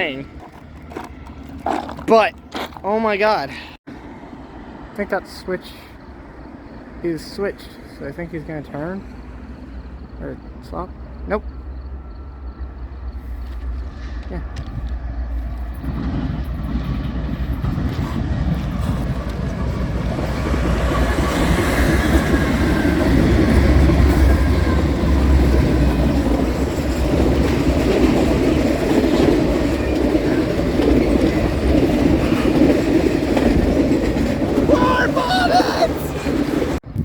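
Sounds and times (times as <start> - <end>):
train wheels rumbling on rails: 7.5 - 37.0.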